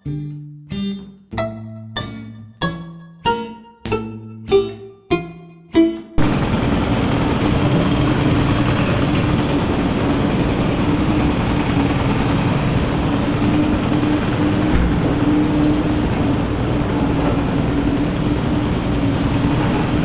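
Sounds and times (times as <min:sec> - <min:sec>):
large engine running: 0:06.2 - 0:20.0.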